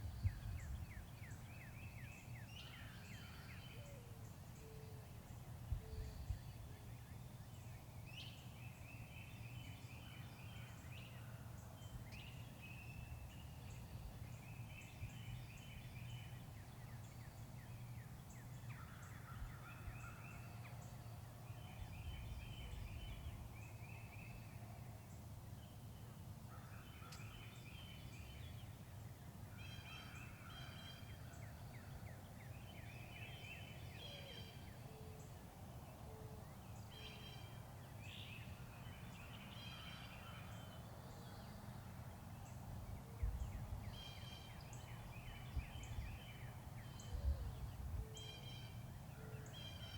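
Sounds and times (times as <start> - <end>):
faint turkey calls: 26.1 - 27.5.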